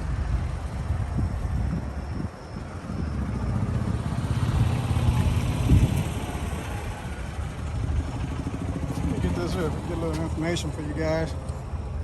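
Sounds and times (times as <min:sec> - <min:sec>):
car engine idling: 0:02.4 - 0:12.0.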